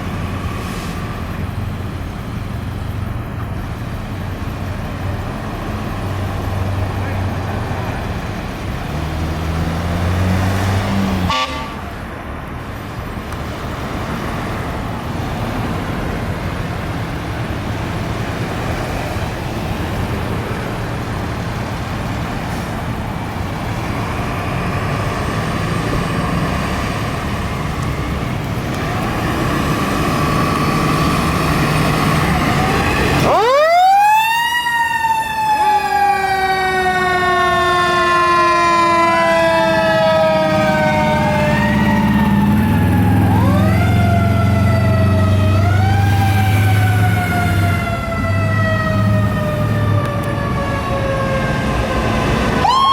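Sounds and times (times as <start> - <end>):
fire truck engine rumble: 0.0 - 52.9
fire truck siren winding: 25.1 - 52.9.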